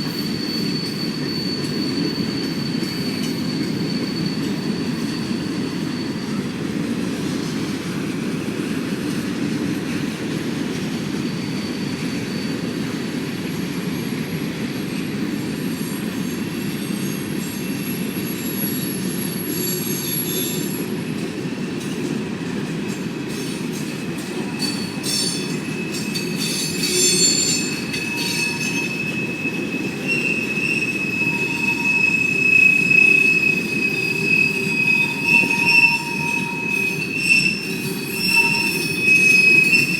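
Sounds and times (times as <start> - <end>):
freight train cars rumbling: 0.0 - 39.9
train wheel squeal: 0.0 - 39.9
train clicks: 21.1 - 30.2.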